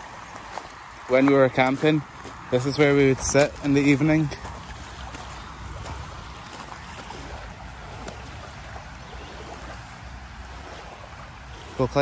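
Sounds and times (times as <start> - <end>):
water lapping on stony shore: 0.0 - 12.0.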